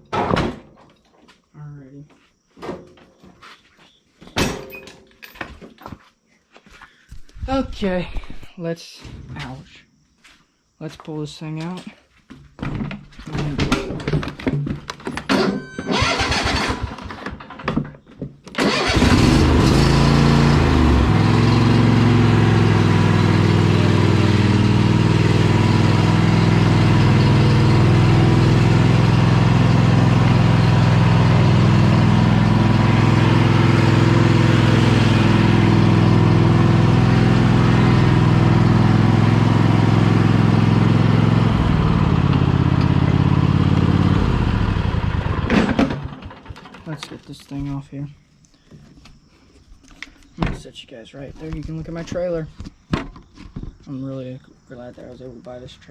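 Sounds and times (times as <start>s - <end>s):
equipment clanking and knocking: 4.3s - 5.9s, 11.6s - 15.9s
engine starting and running: 14.9s - 17.8s, 18.4s - 47.1s.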